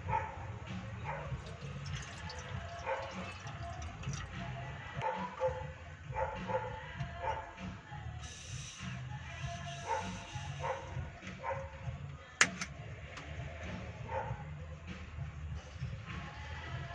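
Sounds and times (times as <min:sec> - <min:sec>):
dog barking: 0:00.0 - 0:01.5, 0:02.7 - 0:03.4, 0:05.0 - 0:07.5, 0:09.6 - 0:11.7, 0:14.1 - 0:14.4.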